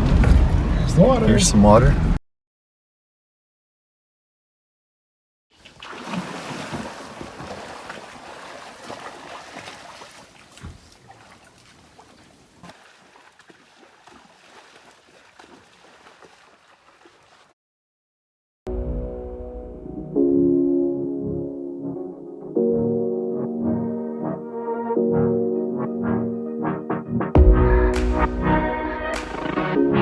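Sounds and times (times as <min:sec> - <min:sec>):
creek running over rocks: 0:05.6 - 0:17.6.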